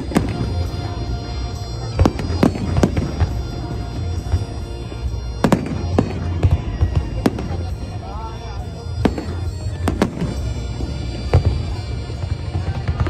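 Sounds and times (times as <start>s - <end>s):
fireworks bangs: 0.0s - 8.0s, 9.0s - 13.0s
music playing: 0.0s - 13.0s.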